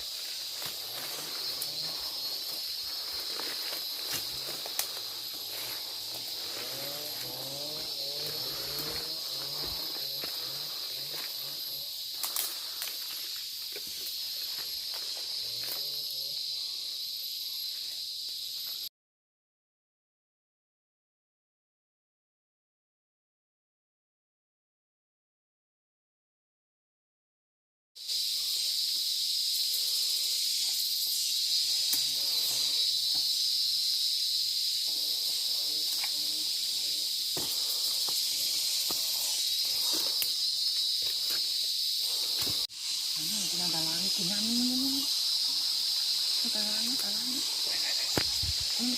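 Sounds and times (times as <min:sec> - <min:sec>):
footsteps in undergrowth: 0:00.0 - 0:15.6, 0:35.0 - 0:43.5, 0:47.4 - 0:48.9
forest insects droning: 0:00.0 - 0:18.9, 0:28.0 - 0:48.9.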